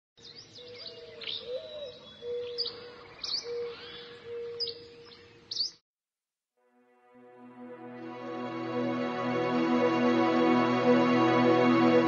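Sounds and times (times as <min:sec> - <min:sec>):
birds chirping: 0:00.2 - 0:05.8.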